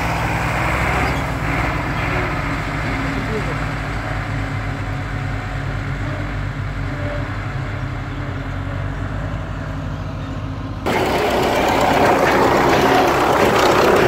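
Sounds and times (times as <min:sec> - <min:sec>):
tractor engine droning: 0:00.0 - 0:14.0.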